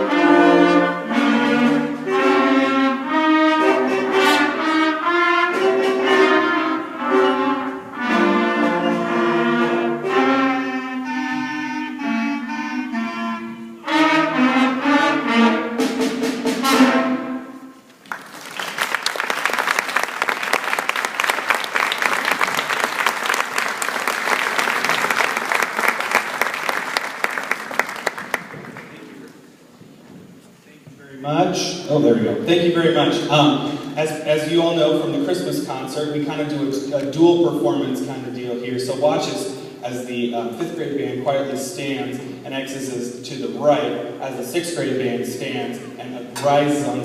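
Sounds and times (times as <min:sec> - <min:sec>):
concert band playing: 0:00.0 - 0:19.0
audience applause: 0:18.0 - 0:29.4.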